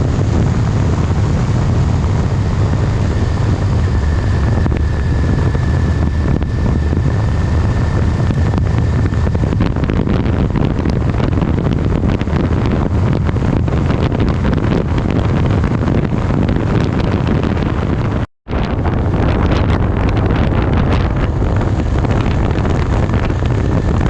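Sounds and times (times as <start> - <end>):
faint high whine: 0.0 - 14.5
low engine drone: 0.0 - 24.0
wind on microphone: 0.0 - 24.0.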